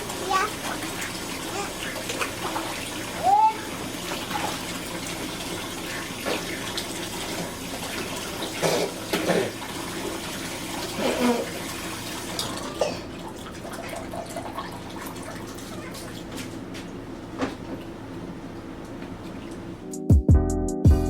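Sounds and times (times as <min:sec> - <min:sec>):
water running from a tap: 0:00.0 - 0:16.6.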